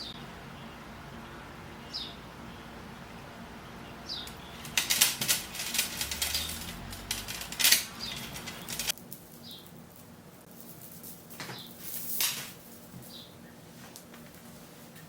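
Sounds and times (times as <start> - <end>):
songbird chirps: 0.0 - 4.8, 7.8 - 9.8, 13.0 - 13.7
beads rattling in a container: 4.7 - 13.0.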